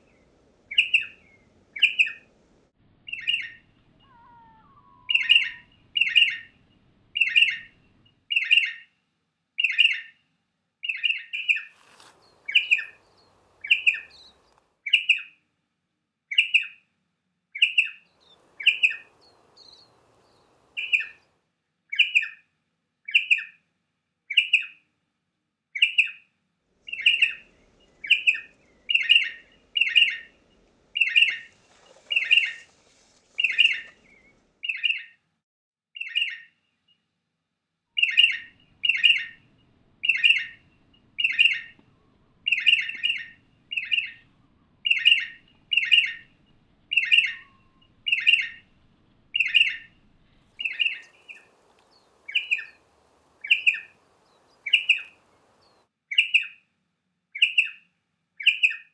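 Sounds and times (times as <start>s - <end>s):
bird sharp clipped call: 10.9s - 15.2s, 50.6s - 56.5s.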